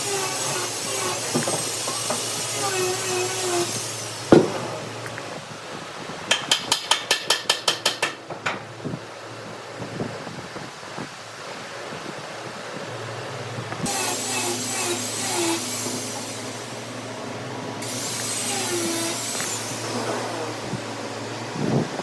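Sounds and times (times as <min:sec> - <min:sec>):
tool cutting wood hissing: 0:00.0 - 0:05.4, 0:13.8 - 0:21.8
lathe motor humming: 0:13.9 - 0:22.0.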